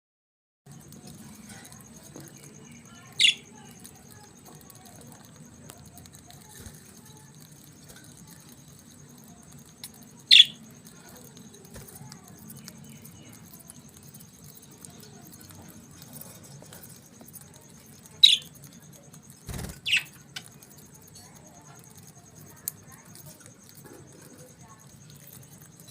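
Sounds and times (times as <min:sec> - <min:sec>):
budgerigar chirping: 0:03.2 - 0:03.5, 0:10.3 - 0:10.6, 0:18.2 - 0:18.5, 0:19.5 - 0:20.4.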